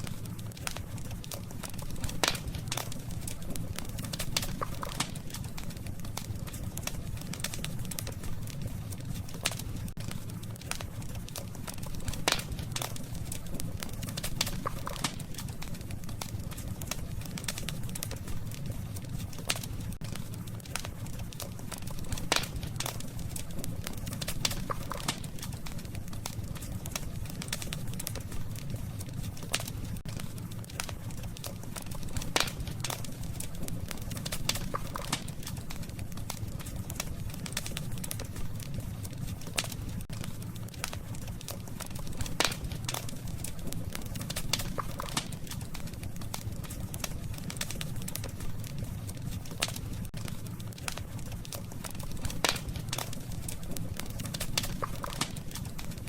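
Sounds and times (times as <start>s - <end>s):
low rumble of fire: 0.0s - 56.0s
sharp pops and snaps: 0.0s - 56.0s
wood fire crackling: 0.0s - 56.0s.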